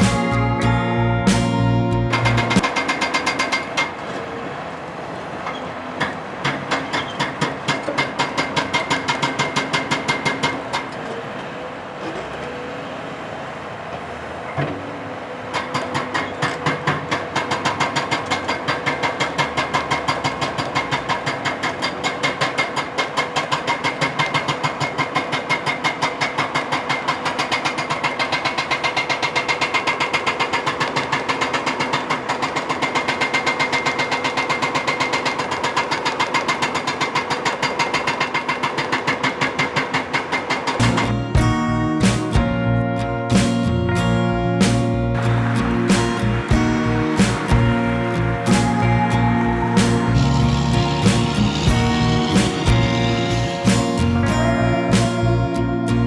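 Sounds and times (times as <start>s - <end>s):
hydraulic hammer pounding rock: 2.5s - 4.0s, 6.0s - 10.9s, 15.5s - 42.6s
excavator engine hum: 40.8s - 56.0s.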